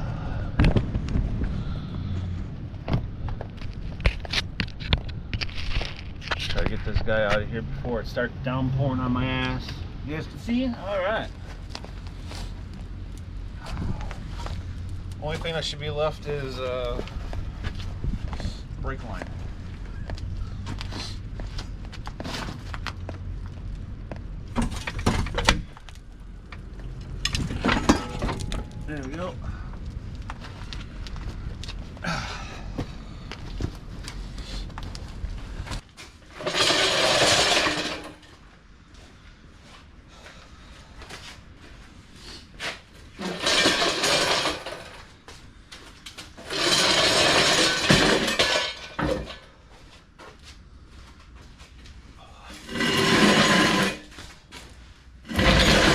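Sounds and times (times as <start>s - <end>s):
metal tools clanking and scraping: 27.2s - 29.4s, 36.3s - 38.3s, 43.2s - 45.1s, 46.4s - 49.6s, 52.5s - 54.3s, 55.3s - 55.9s.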